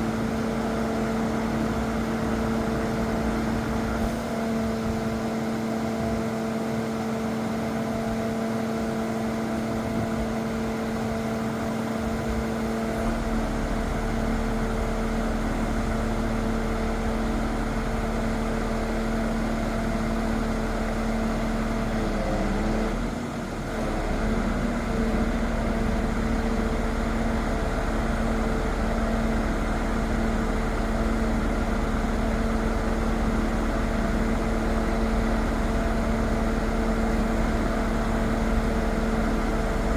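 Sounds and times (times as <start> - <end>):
truck engine humming: 24.2 - 39.9.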